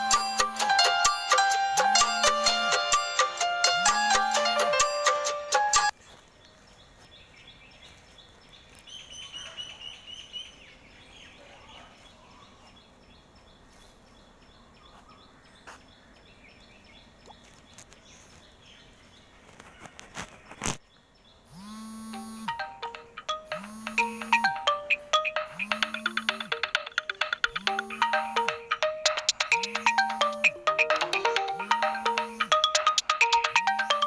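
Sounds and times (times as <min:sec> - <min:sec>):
electronic ringtone melody: 0:00.0 - 0:06.0, 0:22.0 - 0:34.0
small birds chirping: 0:05.9 - 0:34.0.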